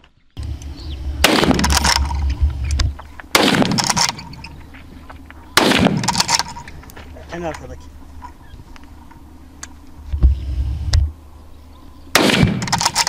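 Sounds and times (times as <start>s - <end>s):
echoing gunshots: 1.2s - 2.3s, 3.3s - 4.5s, 5.6s - 6.6s, 12.1s - 13.0s.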